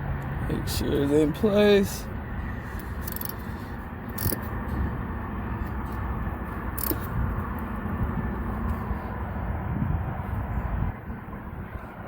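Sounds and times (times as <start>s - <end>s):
low rumble of vehicles: 0.0s - 12.0s.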